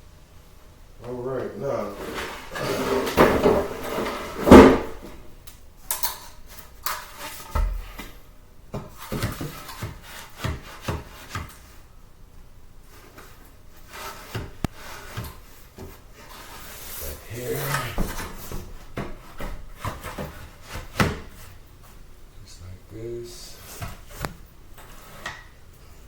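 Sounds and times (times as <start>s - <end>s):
wood scraping on wood: 1.1s - 5.2s, 6.3s - 11.9s, 12.8s - 22.0s, 23.2s - 26.0s
wooden boards knocking: 3.0s - 5.2s.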